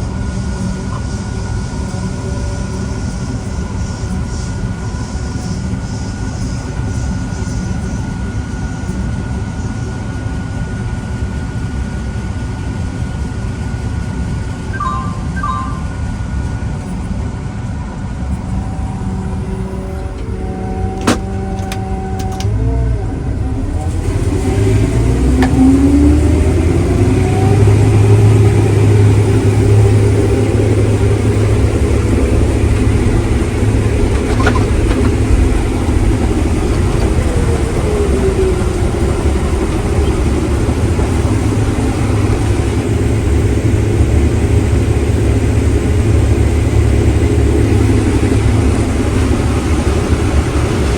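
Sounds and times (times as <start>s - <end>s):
heavy diesel engine running: 18.0s - 50.9s.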